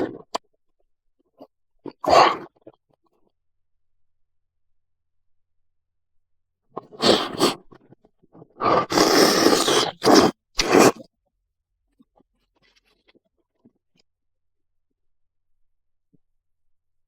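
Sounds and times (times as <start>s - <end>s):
close-miked mouth eating sounds: 6.8s - 11.0s.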